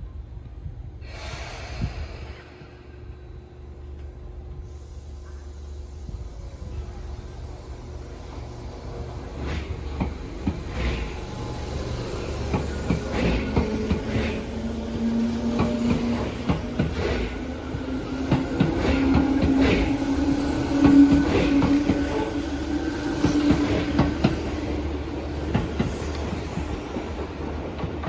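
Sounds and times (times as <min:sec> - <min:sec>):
train wheels clicking on rail joints: 0:07.7 - 0:28.0.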